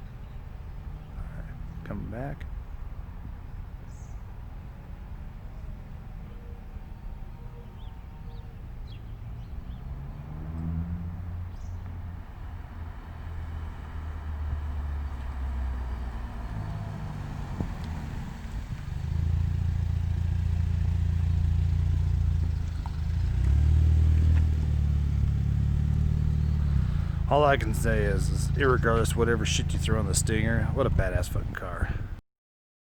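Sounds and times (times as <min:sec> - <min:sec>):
car exhaust approaching: 0:07.0 - 0:32.2
car engine revving: 0:07.7 - 0:31.4.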